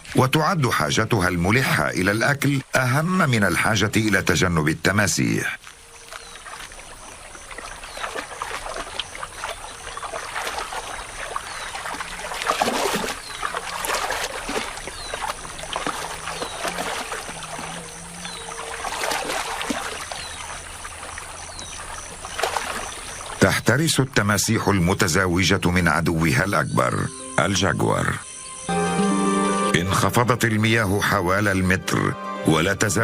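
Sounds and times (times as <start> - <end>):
water dripping: 0.0 - 24.2
splashing in muddy water: 5.6 - 24.1.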